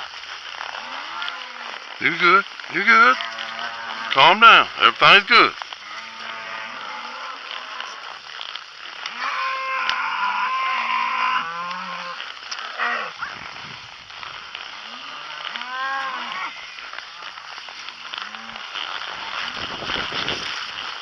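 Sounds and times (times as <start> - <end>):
cattle mooing: 0.6 - 4.7, 5.8 - 8.2, 9.0 - 13.2, 14.7 - 16.8.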